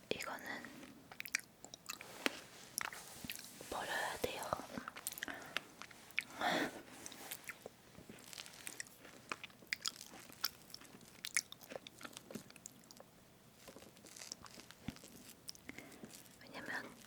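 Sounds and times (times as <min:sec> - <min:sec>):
soft chewing: 0:00.3 - 0:17.0
small wet clicks and crackles: 0:07.2 - 0:17.0.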